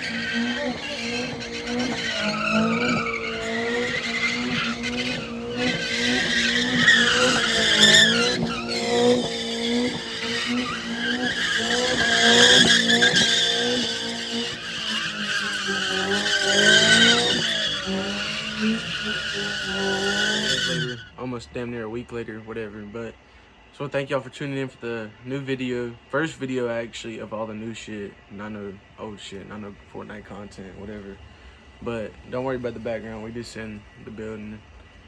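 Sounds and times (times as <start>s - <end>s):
car engine revving: 0.0s - 23.0s
tires squealing: 0.0s - 23.1s, 28.4s - 35.0s.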